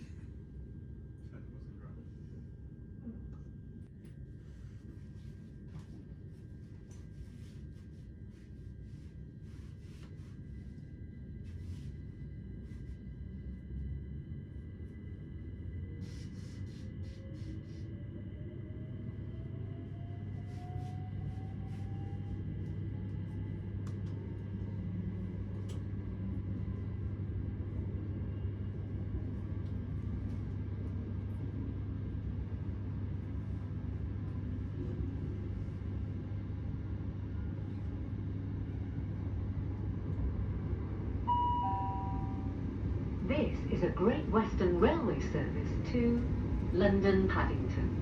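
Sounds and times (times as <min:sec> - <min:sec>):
faint rising whine: 0:40.4 - 0:44.5
two-note announcement chime: 0:41.3 - 0:42.6.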